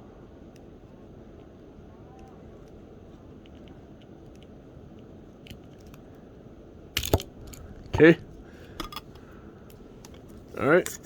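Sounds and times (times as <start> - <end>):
faint handling clicks: 0.5 - 6.2.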